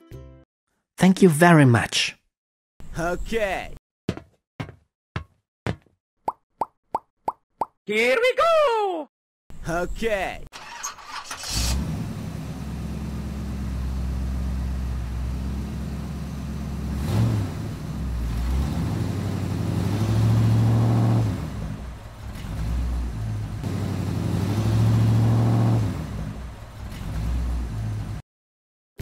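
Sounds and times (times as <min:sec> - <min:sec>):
tractor engine running: 0:10.6 - 0:28.2.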